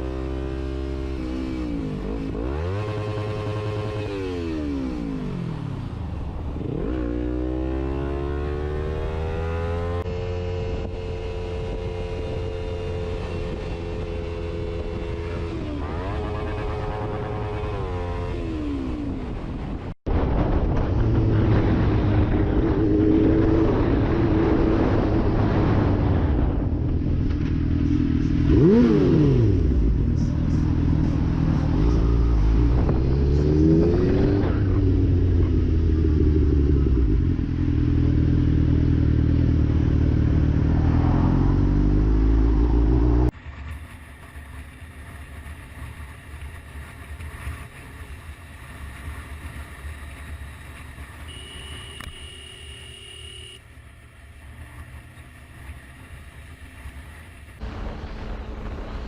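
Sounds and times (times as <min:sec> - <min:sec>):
motorcycle engine revving: 0:00.0 - 0:05.8, 0:06.6 - 0:19.6, 0:21.0 - 0:43.4, 0:50.8 - 0:53.6.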